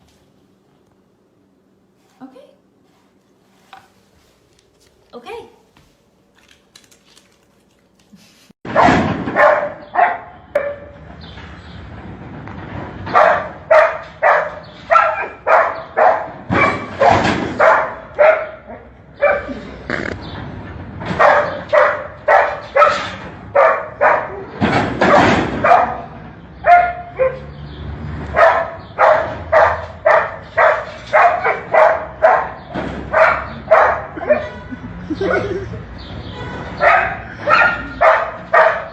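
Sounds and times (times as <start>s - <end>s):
dog barking sharply: 8.7s - 10.9s, 13.1s - 19.5s, 21.2s - 24.4s, 25.1s - 26.1s, 26.7s - 27.5s, 28.4s - 34.5s, 36.8s - 38.9s.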